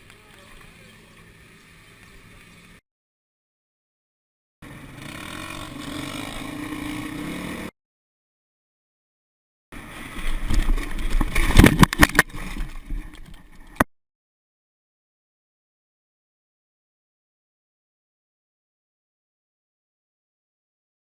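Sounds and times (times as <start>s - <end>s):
dirt bike engine running: 4.6s - 7.7s.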